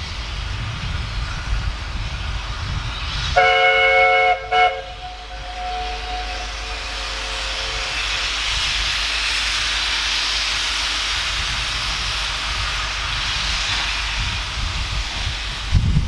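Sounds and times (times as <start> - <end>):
steam locomotive hissing: 0.0 - 16.0
steam whistle: 3.4 - 8.5.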